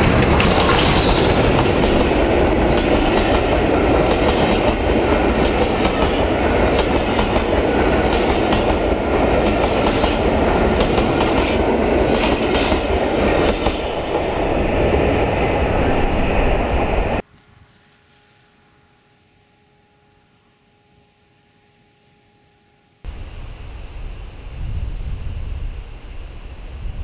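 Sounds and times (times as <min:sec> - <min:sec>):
train wheels clicking over rail joints: 0:00.0 - 0:14.3
wind on microphone: 0:12.8 - 0:17.2, 0:23.1 - 0:27.0.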